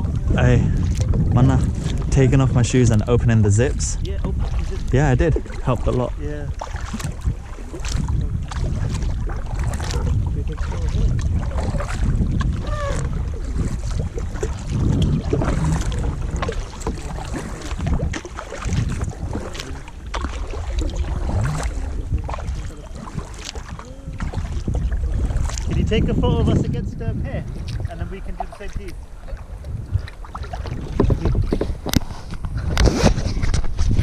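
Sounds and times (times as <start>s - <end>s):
knocks from a kayak: 0.0s - 2.2s, 28.9s - 34.0s
water splashes: 0.0s - 34.0s
wind buffeting microphone: 0.0s - 34.0s.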